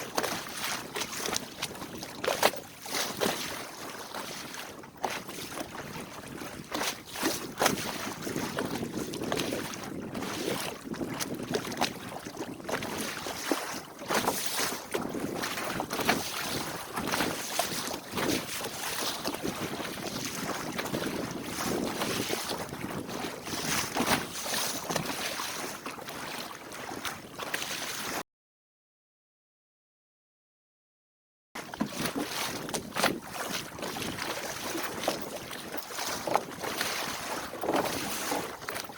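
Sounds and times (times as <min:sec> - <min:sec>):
water splashing along hull: 0:00.0 - 0:28.2, 0:31.6 - 0:38.9
wind buffeting microphone: 0:07.4 - 0:13.2, 0:14.9 - 0:24.2.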